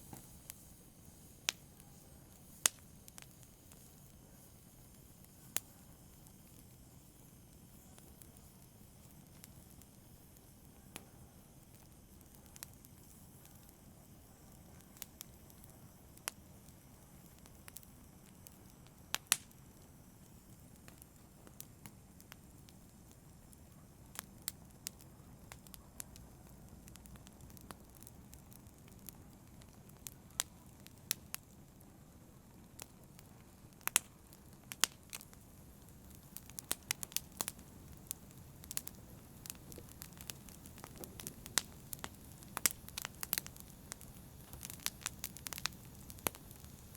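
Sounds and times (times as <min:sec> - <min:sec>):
fire crackling and popping: 0:00.0 - 0:46.9
wood fire rumbling: 0:32.4 - 0:46.9.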